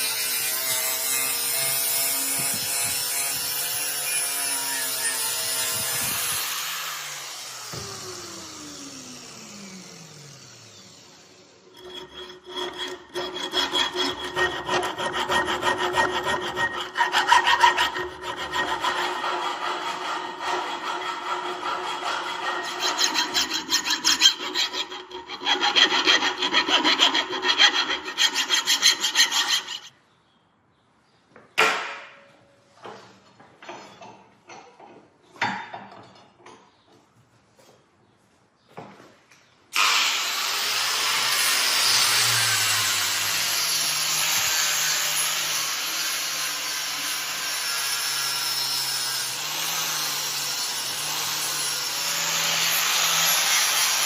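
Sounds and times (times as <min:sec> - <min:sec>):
hand tool scraping steel: 0:11.7 - 0:29.9.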